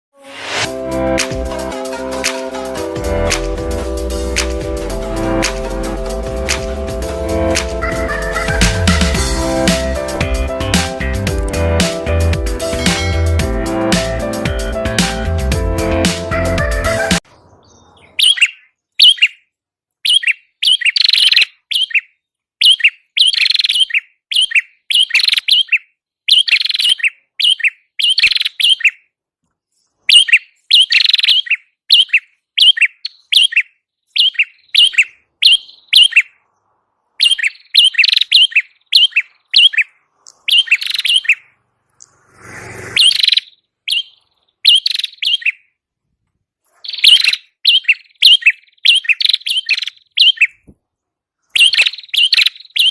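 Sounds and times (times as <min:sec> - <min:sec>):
bird chirping rapidly: 0:04.3 - 0:11.3, 0:17.1 - 0:29.2, 0:30.1 - 0:45.8, 0:46.7 - 0:50.7, 0:51.5 - 0:52.9.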